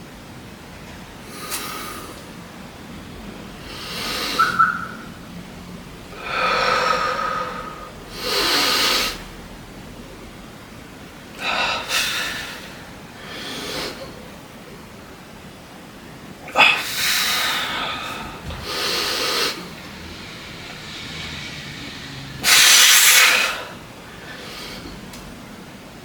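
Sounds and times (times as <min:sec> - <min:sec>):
person breathing hard: 0:03.6 - 0:04.5, 0:06.1 - 0:09.4, 0:11.4 - 0:14.3, 0:16.6 - 0:25.1.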